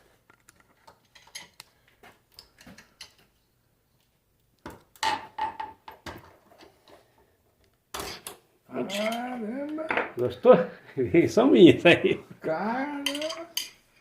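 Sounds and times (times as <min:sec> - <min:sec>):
metal parts clinking and clanking: 0:00.3 - 0:01.6, 0:13.0 - 0:13.7.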